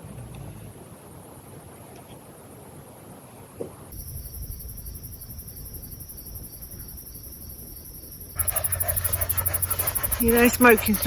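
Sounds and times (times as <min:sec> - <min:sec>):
crickets trilling: 0:03.9 - 0:11.0.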